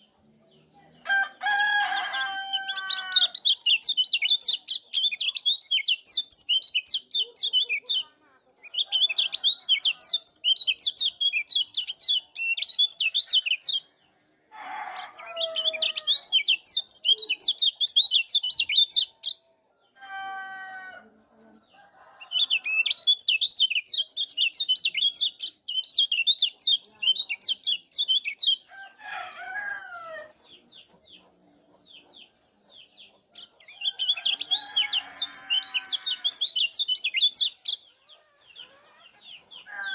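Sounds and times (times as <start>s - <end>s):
other birds calling: 1.0s - 13.9s, 22.0s - 39.9s
bird high chirps: 2.1s - 14.0s, 15.0s - 19.4s, 22.2s - 28.7s, 30.3s - 39.9s.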